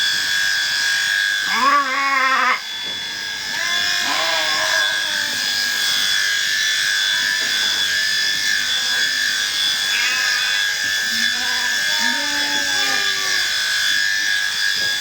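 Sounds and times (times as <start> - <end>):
electric shearing handpiece whining: 0.0 - 15.0
sheep bleating: 1.4 - 2.6, 3.5 - 5.6, 9.8 - 13.6.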